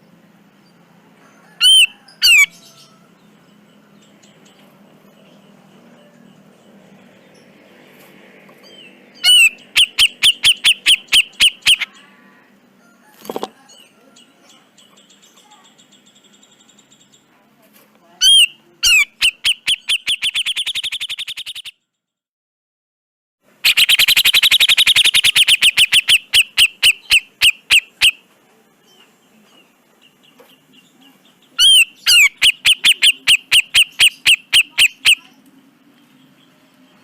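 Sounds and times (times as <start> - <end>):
bulbul calling in rapid notes: 1.6 - 2.6, 9.2 - 12.0, 18.2 - 21.7, 23.6 - 28.2, 31.6 - 35.4.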